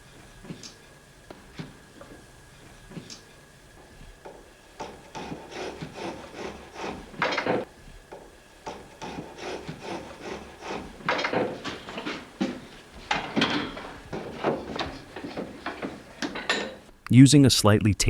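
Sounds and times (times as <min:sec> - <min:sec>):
hand plane scraping wood: 0:04.2 - 0:16.4.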